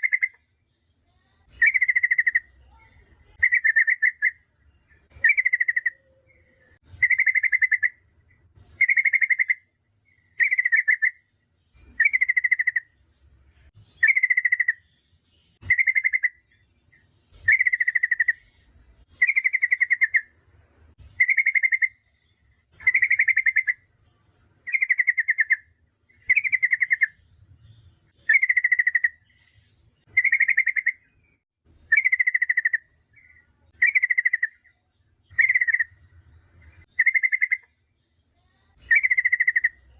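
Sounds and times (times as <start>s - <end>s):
bird buzzy chattering call: 22.7s - 23.9s, 28.2s - 29.4s, 31.8s - 34.7s.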